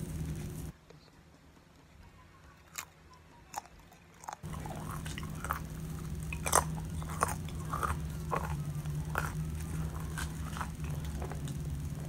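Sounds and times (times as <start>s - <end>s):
low steady hum: 0.0s - 12.0s
crunchy chewing: 2.4s - 12.0s.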